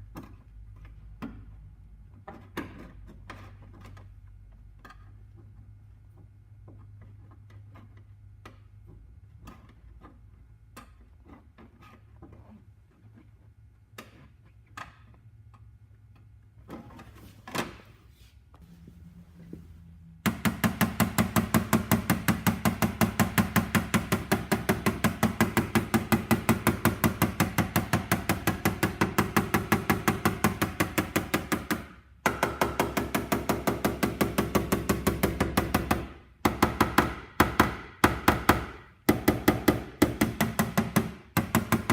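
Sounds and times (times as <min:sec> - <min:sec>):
hammer tapping on steel panel: 0:20.3 - 0:41.9.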